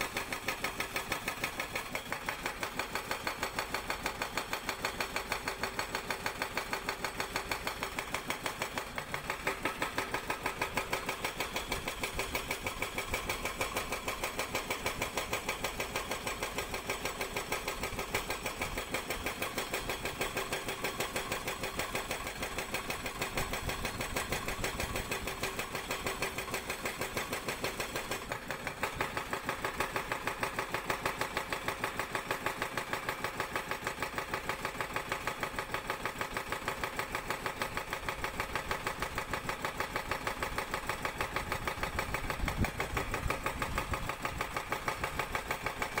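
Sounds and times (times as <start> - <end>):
excavator engine running: 0.0 - 46.0.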